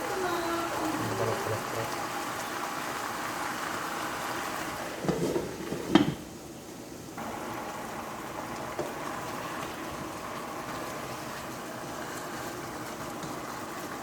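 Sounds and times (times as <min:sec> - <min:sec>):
water running in a sink: 0:00.0 - 0:14.0
pots and dishes clattering: 0:05.0 - 0:06.2.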